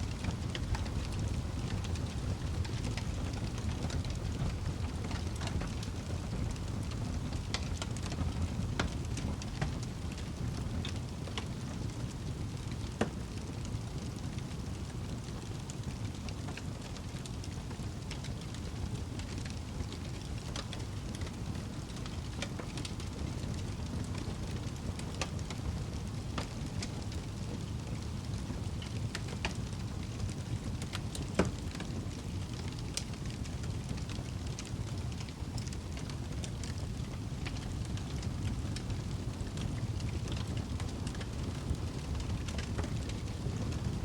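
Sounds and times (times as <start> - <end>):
fire crackling and popping: 0.0 - 44.0
fire flames rumbling: 0.0 - 44.0.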